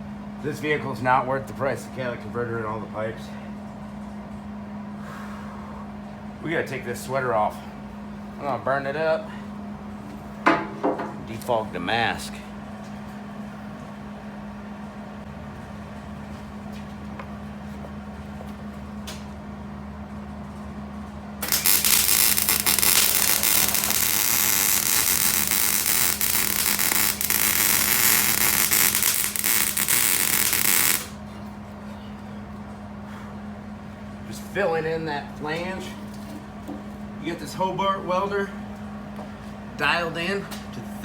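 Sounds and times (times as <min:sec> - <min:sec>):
welding arc crackling: 0:21.4 - 0:31.2.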